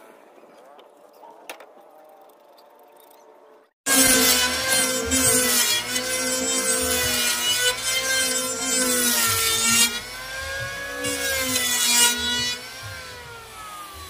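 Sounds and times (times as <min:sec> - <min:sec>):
wood cutting noise: 0:03.8 - 0:14.0
power tool motor whine: 0:03.9 - 0:14.0.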